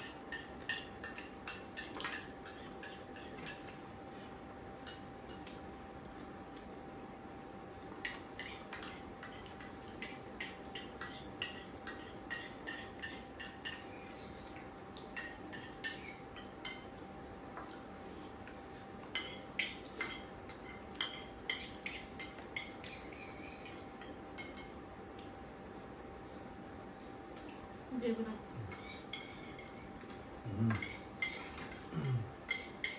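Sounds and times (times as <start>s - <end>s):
faint steady hum: 0.0s - 32.9s
cutlery and dishes clinking: 28.7s - 32.9s.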